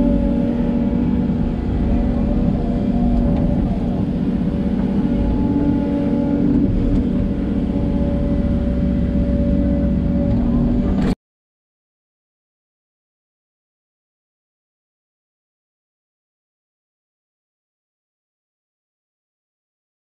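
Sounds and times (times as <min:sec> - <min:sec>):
excavator diesel engine running: 0:00.0 - 0:11.2.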